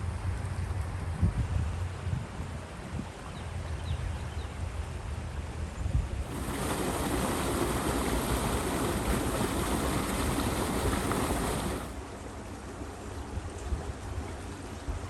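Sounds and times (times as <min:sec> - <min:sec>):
wind rumble on microphone: 0:00.0 - 0:04.5, 0:05.1 - 0:12.0
water rushing through culvert: 0:06.2 - 0:15.0.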